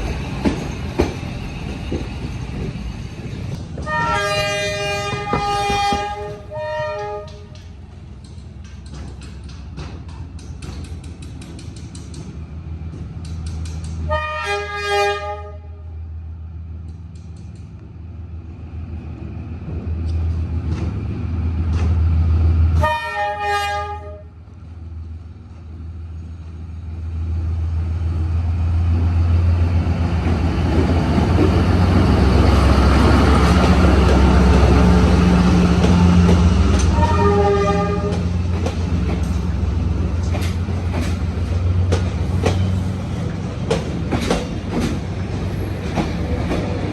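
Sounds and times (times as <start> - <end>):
locomotive engine rumble: 0.0 - 14.0, 24.6 - 46.9
train horn blasts: 3.8 - 7.7, 14.1 - 16.0, 22.8 - 24.4, 36.7 - 38.4.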